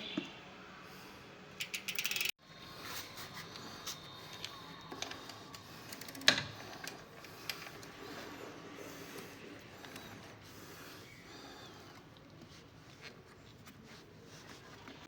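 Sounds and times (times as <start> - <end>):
bicycle chain and freewheel clicking: 1.6 - 2.3.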